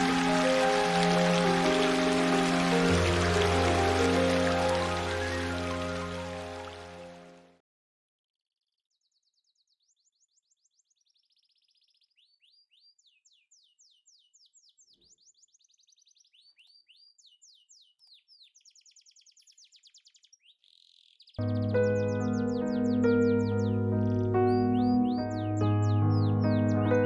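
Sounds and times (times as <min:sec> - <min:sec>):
songbird singing trills: 0:00.0 - 0:06.8, 0:08.9 - 0:27.0
music: 0:00.0 - 0:07.6, 0:21.4 - 0:27.0.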